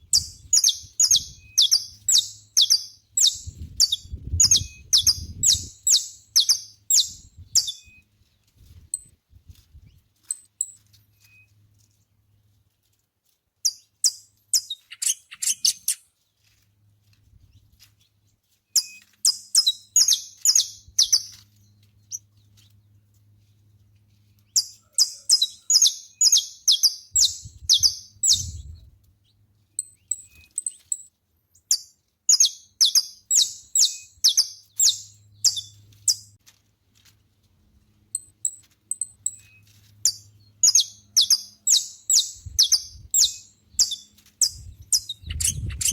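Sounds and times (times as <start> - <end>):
finch singing high sharp notes: 24.6 - 28.7.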